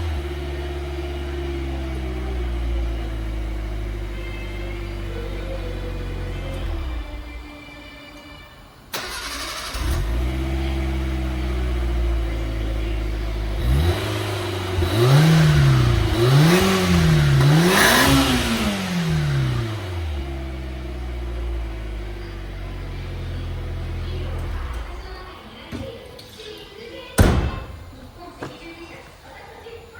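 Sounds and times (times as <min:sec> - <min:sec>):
car engine idling and revving: 0:00.0 - 0:07.5, 0:08.9 - 0:25.4.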